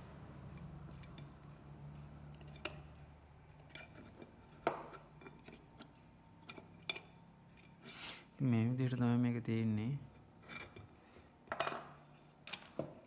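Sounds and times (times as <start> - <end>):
tools clicking and tapping: 11.5 - 13.0.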